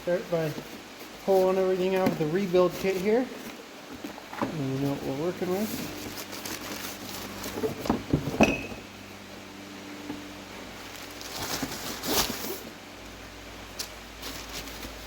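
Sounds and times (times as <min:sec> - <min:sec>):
low steady hum: 0:00.0 - 0:15.0
packaging rustling: 0:00.4 - 0:08.1, 0:10.9 - 0:12.7, 0:13.8 - 0:15.0.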